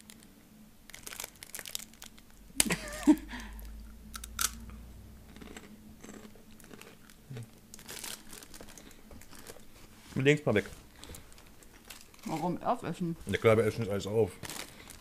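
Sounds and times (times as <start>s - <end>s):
person chewing crunchy snack: 3.6s - 4.7s, 5.3s - 9.7s.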